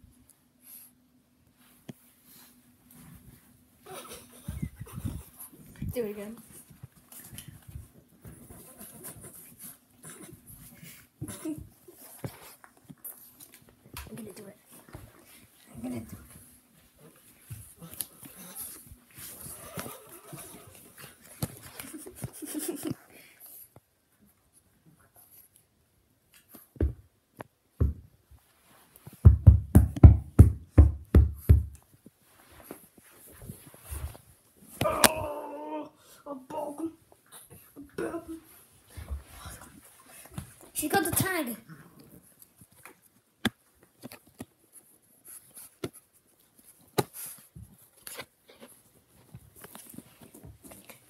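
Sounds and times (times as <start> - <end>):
soft rustling: 28.2 - 29.2, 31.8 - 34.8, 37.0 - 41.5, 42.1 - 51.0.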